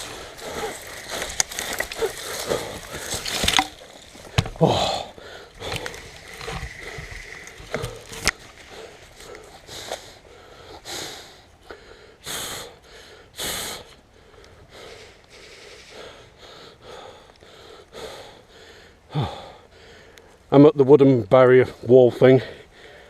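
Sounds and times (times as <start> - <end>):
rustling: 0.0 - 10.3
person breathing hard: 0.0 - 20.4, 22.4 - 23.0.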